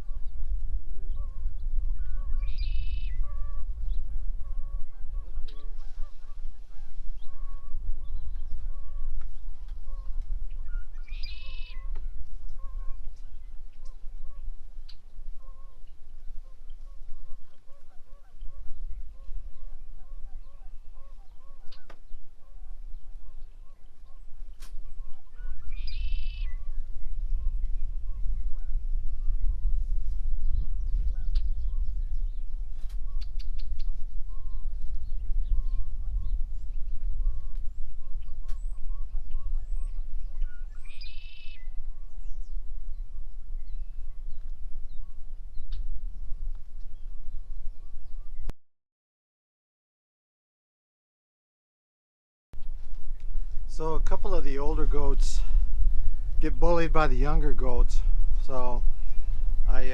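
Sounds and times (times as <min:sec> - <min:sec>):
birds chirping: 0:00.0 - 0:48.5, 0:52.6 - 0:59.9
low rumble of wind: 0:00.0 - 0:48.5, 0:52.6 - 0:59.9
fowl honking calls: 0:04.4 - 0:07.8, 0:09.9 - 0:14.6, 0:15.4 - 0:26.7
steady low rumble: 0:52.6 - 0:59.9.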